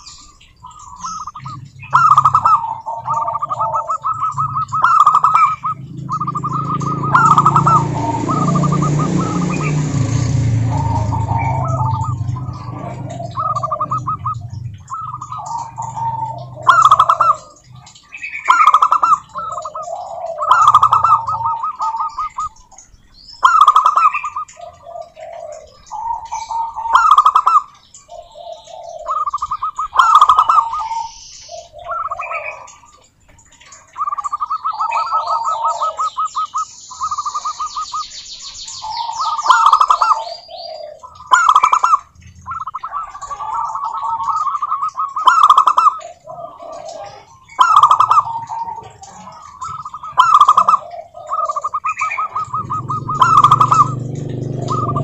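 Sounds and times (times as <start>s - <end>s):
rapid high chirps: 0.0s - 22.6s, 49.4s - 55.0s
doves cooing: 0.0s - 55.0s.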